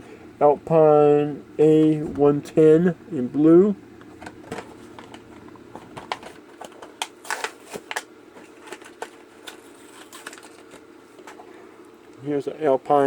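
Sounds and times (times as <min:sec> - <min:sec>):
faint low hum: 0:00.0 - 0:13.0
plastic packaging crackling: 0:06.0 - 0:10.8.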